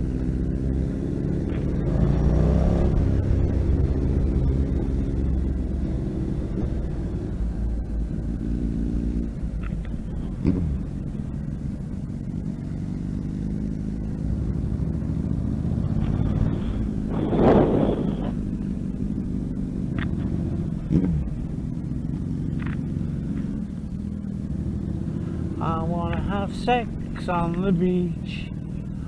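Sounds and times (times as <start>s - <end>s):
motorcycle engine rumbling: 0.0s - 29.0s
rushing sound: 15.3s - 18.4s.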